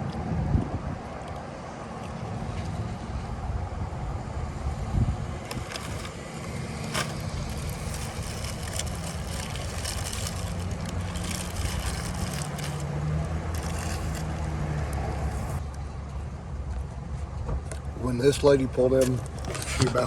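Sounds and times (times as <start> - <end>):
parking lot traffic noise: 0.0 - 20.0
vehicle engine running: 5.3 - 15.6.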